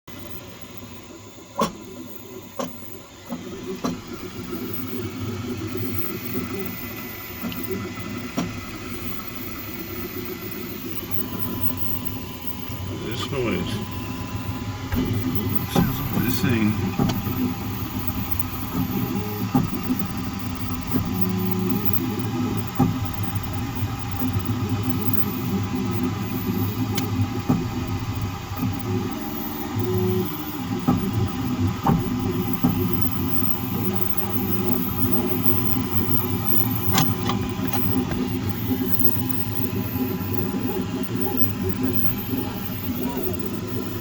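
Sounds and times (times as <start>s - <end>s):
three d printer running: 1.6s - 44.0s
stepper motor tones: 8.9s - 44.0s.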